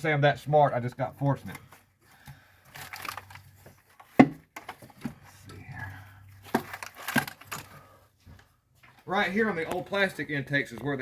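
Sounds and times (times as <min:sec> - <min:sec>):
tools and engine parts clicking: 0:06.5 - 0:07.7.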